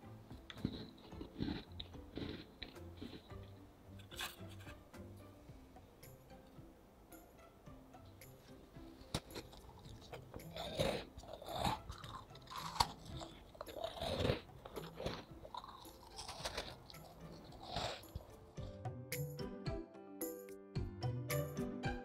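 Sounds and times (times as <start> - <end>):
person chewing crunchy cookie: 0.3 - 4.6, 9.0 - 18.8.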